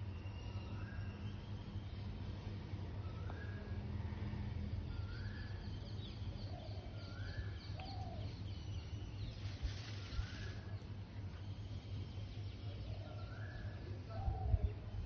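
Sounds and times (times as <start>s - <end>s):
steady low hum: 0.0s - 15.0s
rustling hiss: 9.3s - 10.9s.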